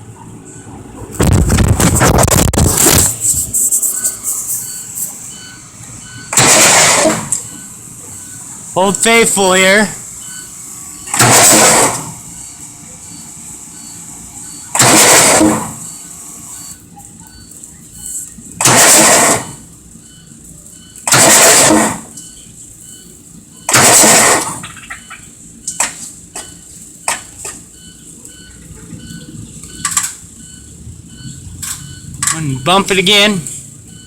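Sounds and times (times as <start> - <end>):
diesel engine cranking on starter: 5.3 - 9.4, 10.0 - 12.4, 13.1 - 16.8, 18.6 - 19.6, 21.0 - 22.3, 23.7 - 25.1.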